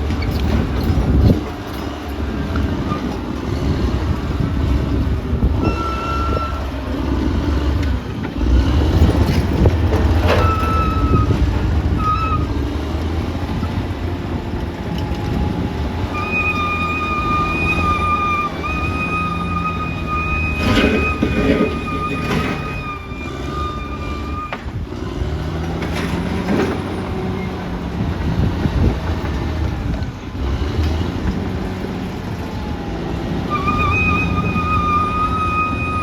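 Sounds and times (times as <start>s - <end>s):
bulldozer engine under load: 0.0s - 36.0s
high squeal: 5.5s - 6.8s, 10.3s - 12.6s, 16.1s - 24.7s, 33.5s - 36.0s.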